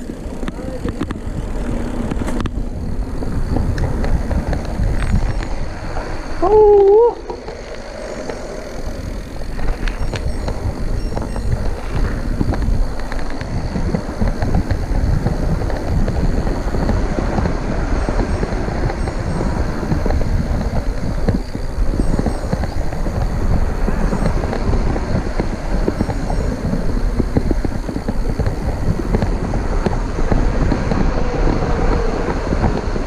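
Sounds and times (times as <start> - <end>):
mountain bike rumbling and rattling: 0.0 - 33.0
wind buffeting microphone: 0.0 - 33.0
person exclaiming: 6.4 - 7.2.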